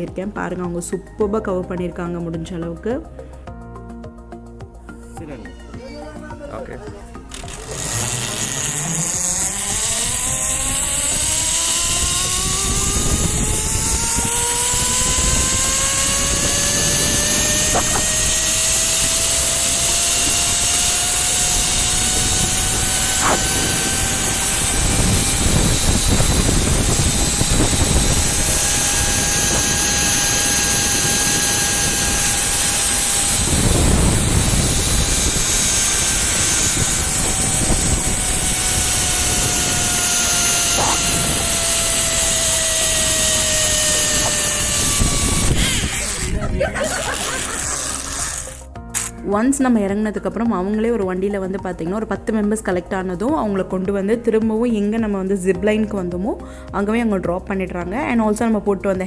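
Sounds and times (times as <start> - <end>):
zipline trolley wheels whining: 5.7 - 49.1
wind buffeting microphone: 7.8 - 47.5.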